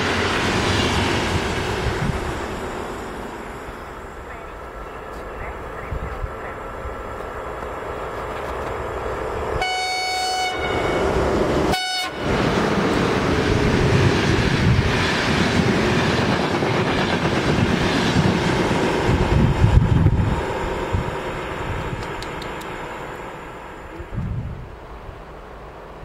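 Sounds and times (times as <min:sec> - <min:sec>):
train wheels rushing on rails: 0:00.0 - 0:26.0
train horn blasts: 0:09.6 - 0:12.3.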